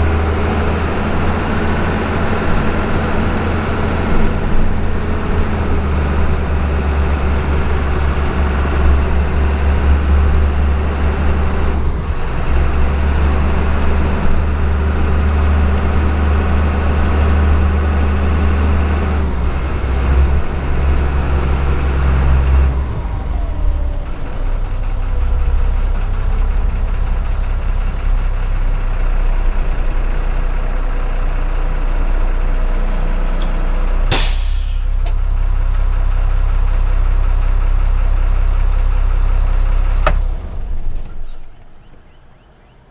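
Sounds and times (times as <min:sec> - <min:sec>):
diesel bus engine running: 0:00.0 - 0:42.8
air brake hiss: 0:34.1 - 0:35.0, 0:41.2 - 0:41.5.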